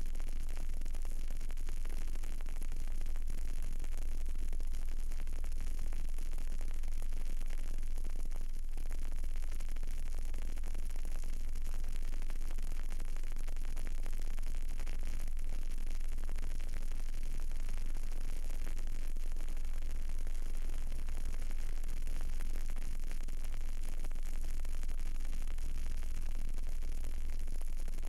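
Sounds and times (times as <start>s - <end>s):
candle hissing and crackling: 0.0s - 28.0s.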